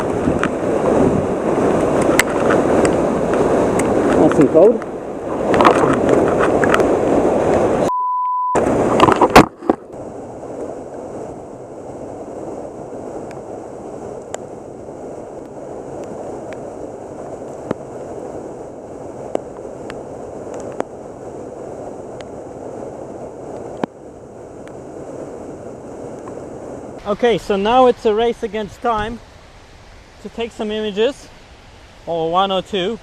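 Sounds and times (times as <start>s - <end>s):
river water rushing: 0.0s - 7.9s, 8.6s - 33.0s
brief steady beep: 7.9s - 8.6s.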